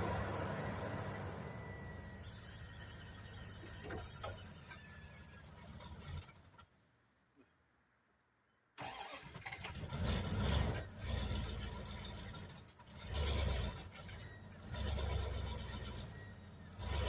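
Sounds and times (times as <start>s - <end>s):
vehicle engine revving: 9.7s - 17.0s.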